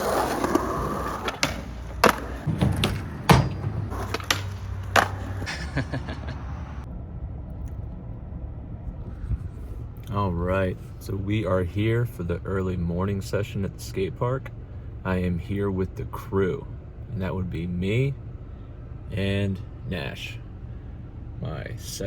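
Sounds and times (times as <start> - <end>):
skateboard clacks: 0.0 - 6.8
skateboard wheels rumbling: 0.0 - 6.9.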